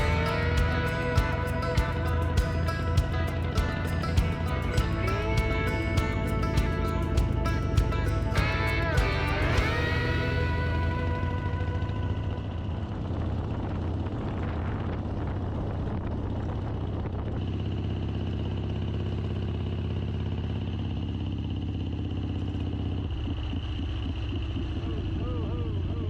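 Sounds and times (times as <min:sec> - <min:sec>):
high whine: 0:00.0 - 0:16.1
motorcycle engine running: 0:00.0 - 0:26.0.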